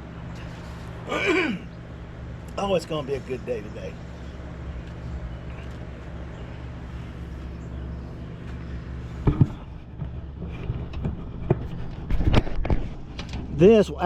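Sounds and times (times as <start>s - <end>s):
low machine hum: 0.0s - 14.0s
knocks of engine parts: 9.2s - 13.5s.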